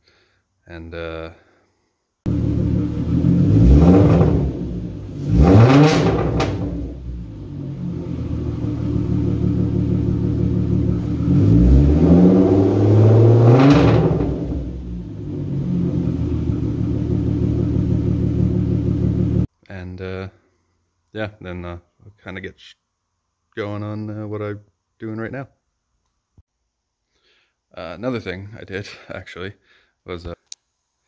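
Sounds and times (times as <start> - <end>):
car engine idling and revving: 2.3 - 19.5.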